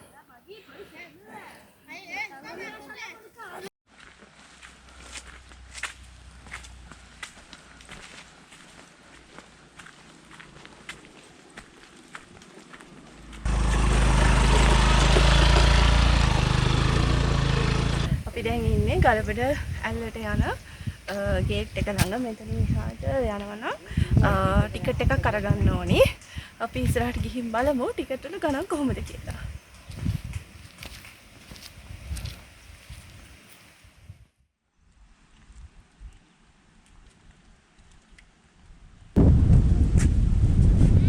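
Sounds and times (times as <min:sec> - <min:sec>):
footsteps on a path: 0:03.9 - 0:16.9, 0:28.5 - 0:33.7
heavy low rumble: 0:13.4 - 0:19.2
wind buffeting microphone: 0:13.5 - 0:31.0, 0:31.6 - 0:33.4, 0:39.2 - 0:41.0.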